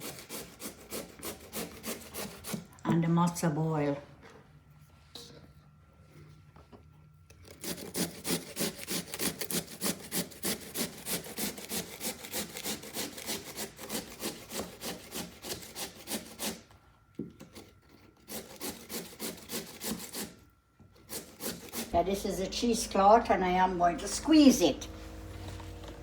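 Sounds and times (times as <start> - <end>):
potato grating on metal grater: 0.0 - 2.7, 7.4 - 16.7, 17.4 - 26.0.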